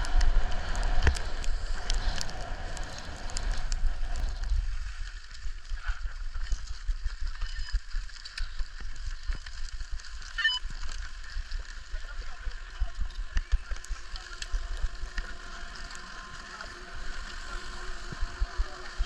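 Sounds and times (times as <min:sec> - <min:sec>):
wind buffeting microphone: 0:00.0 - 0:04.9
small clicks and scrapes: 0:00.0 - 0:19.0.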